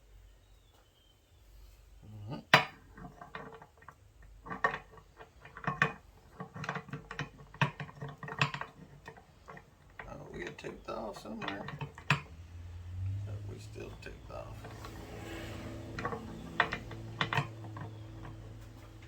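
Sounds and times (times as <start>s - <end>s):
metal parts clinking and knocking: 2.6s - 12.4s, 13.9s - 19.0s.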